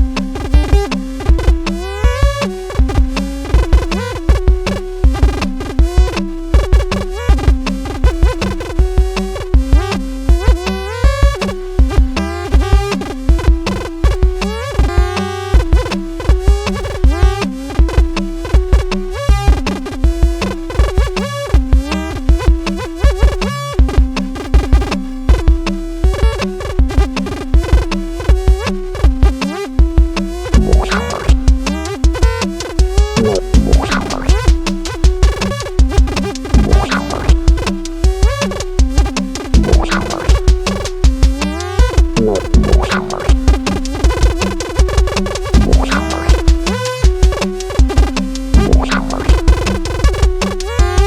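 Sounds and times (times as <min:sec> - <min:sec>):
drum machine beat: 0:00.0 - 0:51.0
pitch-bending synthesizer tones: 0:30.5 - 0:38.8, 0:39.4 - 0:50.3
deep bass hits: 0:30.6 - 0:31.7, 0:32.8 - 0:35.2, 0:35.8 - 0:37.8, 0:39.6 - 0:41.4, 0:42.0 - 0:43.9, 0:45.6 - 0:46.7.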